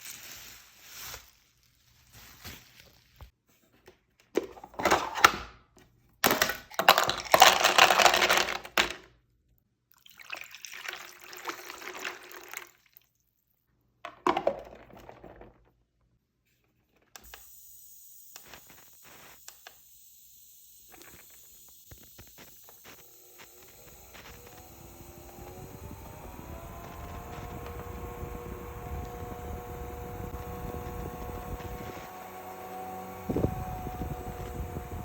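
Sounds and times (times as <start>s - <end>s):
water pouring: 9.9s - 13.2s.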